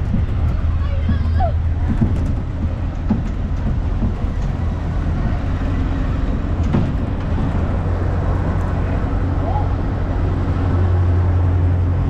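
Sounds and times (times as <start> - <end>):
vehicle rumble: 0.0 - 12.0
knock: 1.0 - 4.3.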